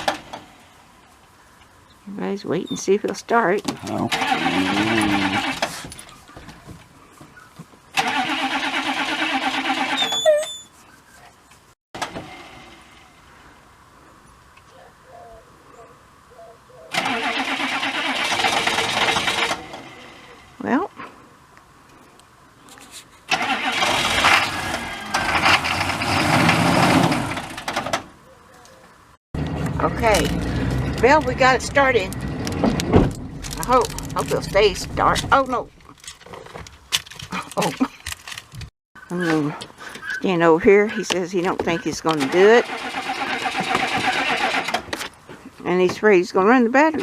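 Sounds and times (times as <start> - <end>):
starter motor cranking engine: 3.9 - 5.9, 7.9 - 10.0, 16.9 - 20.0, 23.3 - 28.0, 42.1 - 44.9
short squeal: 9.9 - 10.8.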